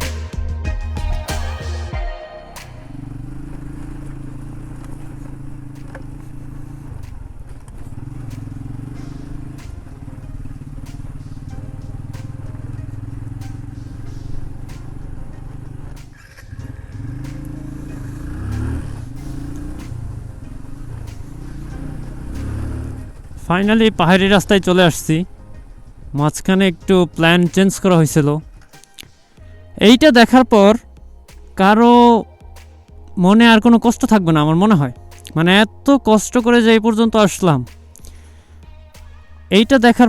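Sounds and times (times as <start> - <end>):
motorcycle engine running: 2.8 - 28.7.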